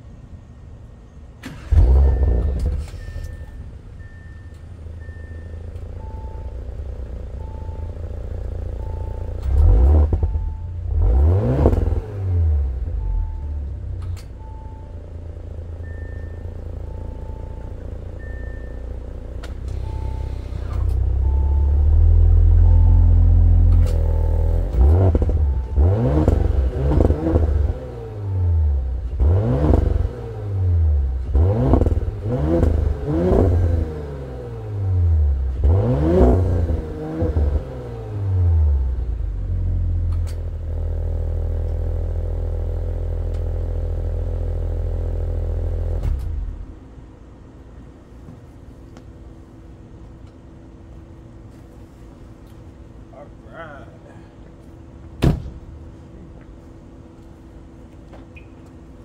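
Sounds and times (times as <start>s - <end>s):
car engine idling and revving: 0.0s - 59.0s.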